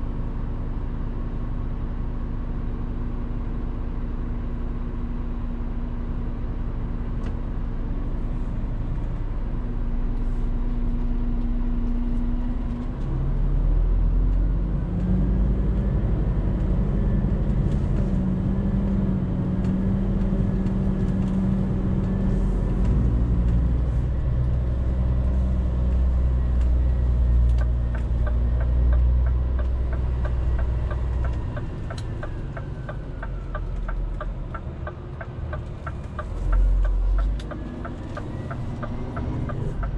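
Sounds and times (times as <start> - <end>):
truck diesel engine droning: 0.0 - 39.9
regular ticking: 25.9 - 39.9.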